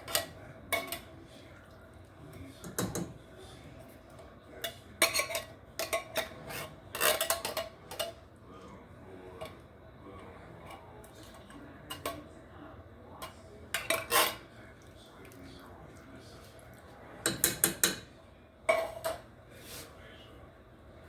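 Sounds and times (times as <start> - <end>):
utensils clinking against pot: 0.0 - 1.2, 2.6 - 3.2, 4.1 - 8.2, 10.6 - 12.3, 13.2 - 14.5, 17.2 - 18.1, 18.7 - 19.3.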